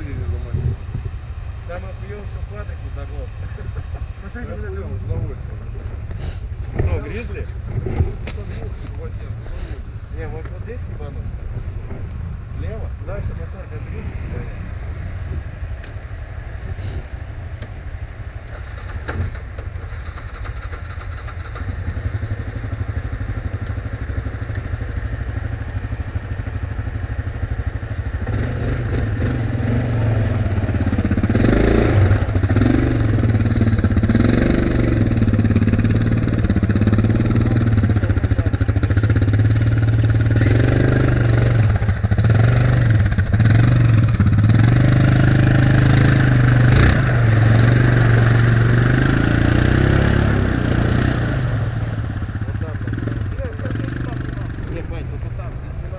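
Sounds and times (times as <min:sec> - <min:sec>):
atv engine revving: 0:13.1 - 0:55.9.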